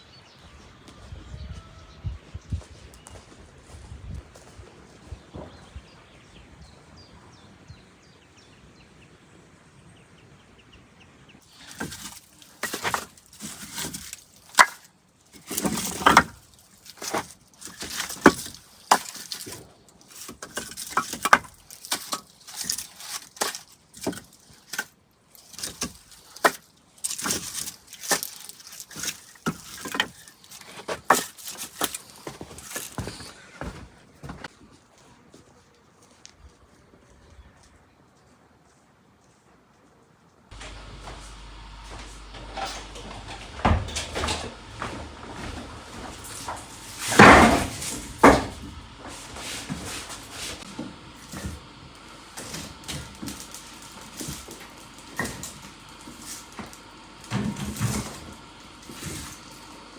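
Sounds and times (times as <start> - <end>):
faint birdsong: 0.0 - 34.3, 35.0 - 39.8
wood cracking and snapping: 11.5 - 33.0, 45.6 - 49.0, 51.2 - 59.9.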